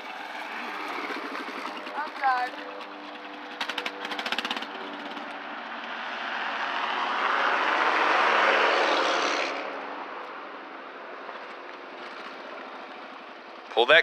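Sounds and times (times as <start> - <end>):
dirt bike riding past: 0.0 - 10.7.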